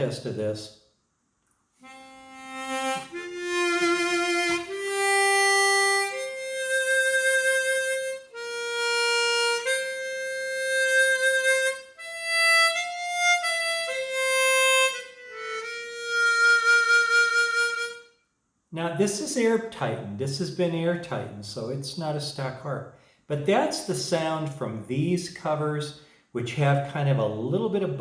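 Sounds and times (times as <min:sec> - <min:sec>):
harmonica melody: 0:01.8 - 0:18.2.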